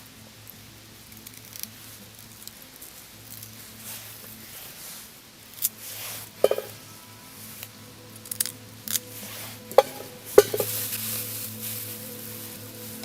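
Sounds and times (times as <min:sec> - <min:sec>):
faint steady hum: 0:00.0 - 0:13.0
light metallic clinks: 0:06.4 - 0:09.1.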